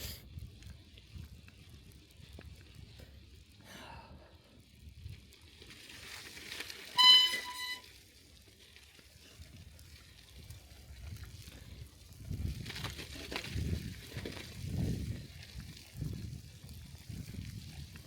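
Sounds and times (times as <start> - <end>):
bicycle tyres rolling on snow: 0.0 - 18.0
short high-pitched beep: 7.0 - 7.8.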